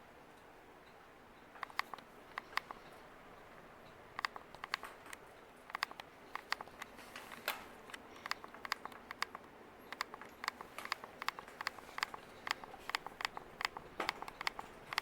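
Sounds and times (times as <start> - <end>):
ceiling fan whirring: 0.0 - 15.0
sharp irregular clicks: 0.8 - 15.0.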